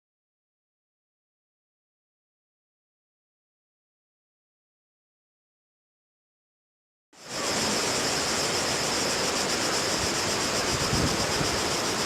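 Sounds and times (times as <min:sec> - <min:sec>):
pulsing insect buzz: 0:07.2 - 0:12.0
waterfall rushing: 0:07.2 - 0:12.0.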